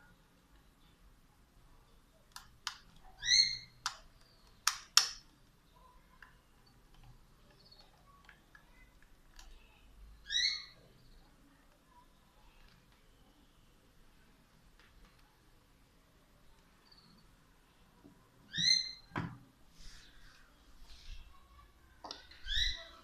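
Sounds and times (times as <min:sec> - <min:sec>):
sharp clicks: 0:03.7 - 0:05.4.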